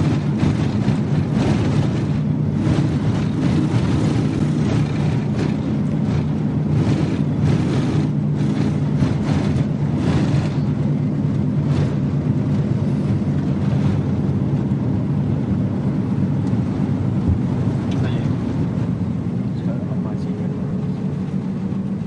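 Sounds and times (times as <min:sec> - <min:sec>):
wind noise: 0:00.0 - 0:19.6
road noise: 0:00.0 - 0:22.0
vehicle engine running: 0:00.0 - 0:22.0.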